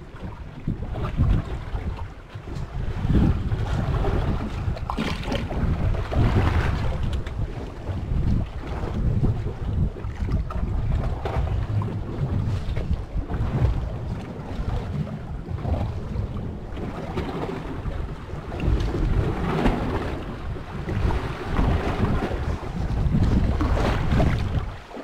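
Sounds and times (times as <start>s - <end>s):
water washing against boat: 0.0s - 25.0s
wind buffeting microphone: 0.0s - 25.0s.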